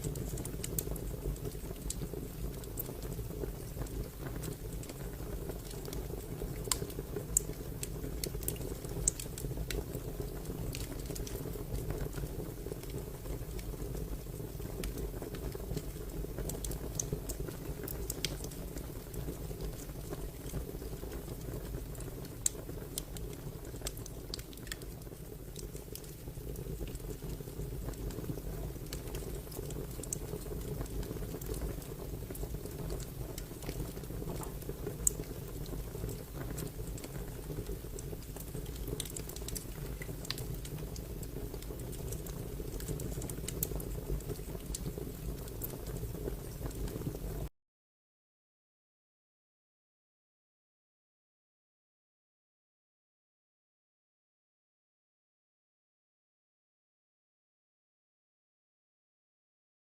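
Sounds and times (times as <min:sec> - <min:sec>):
fire crackling: 0:00.0 - 0:47.5.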